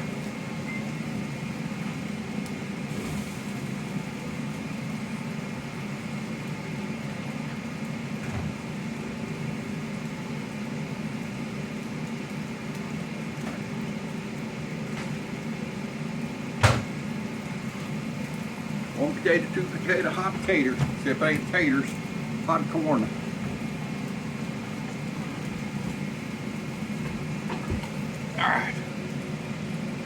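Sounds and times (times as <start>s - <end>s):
low motor hum: 16.2s - 30.0s.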